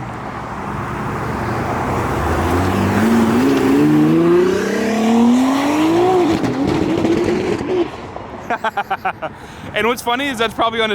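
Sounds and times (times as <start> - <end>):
car engine accelerating hard: 2.0 - 7.9.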